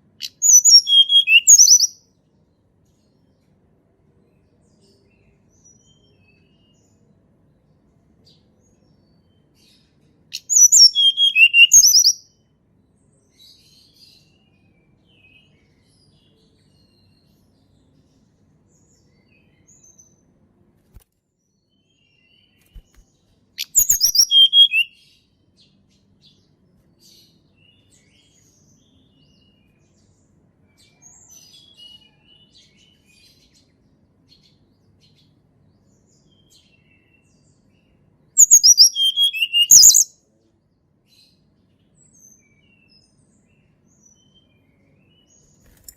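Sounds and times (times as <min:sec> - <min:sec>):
faint soft bird chirps: 0:00.0 - 0:45.9
bird singing high falling notes: 0:00.4 - 0:01.9, 0:23.6 - 0:24.9, 0:38.4 - 0:40.1.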